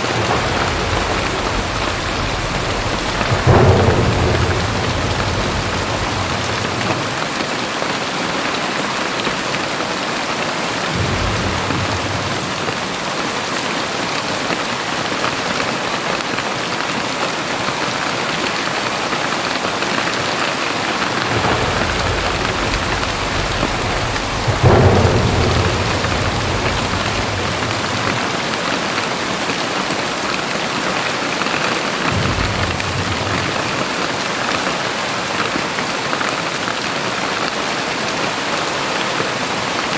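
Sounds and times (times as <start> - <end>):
thunder rumbling: 0.0 - 8.6, 10.7 - 14.2, 19.9 - 30.4, 31.9 - 35.8
thunder clap: 0.0 - 14.6, 19.4 - 39.9
heavy rain pouring: 0.0 - 39.9.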